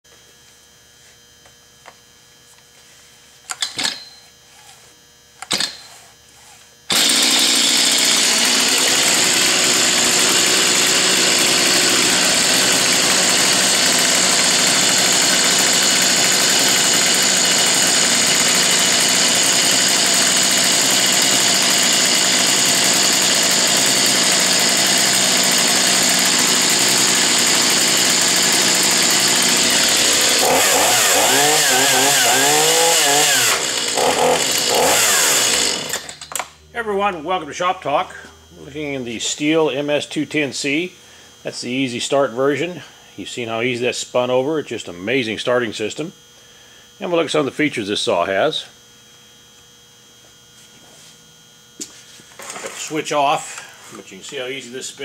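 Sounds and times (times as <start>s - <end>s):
chainsaw starter pulls: 5.4s - 5.8s, 6.9s - 36.5s, 52.4s - 54.5s
chainsaw engine running: 6.9s - 46.1s, 51.8s - 55.0s.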